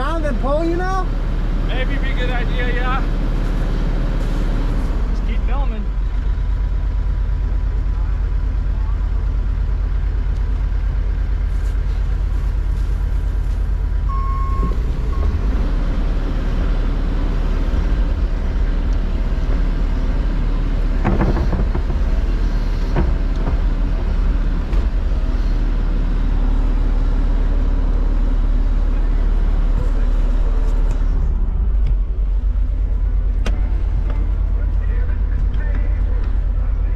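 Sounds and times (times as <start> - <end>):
truck engine rumbling: 0.0 - 36.9
short beep: 14.1 - 15.4
sharp knocks: 21.0 - 23.9.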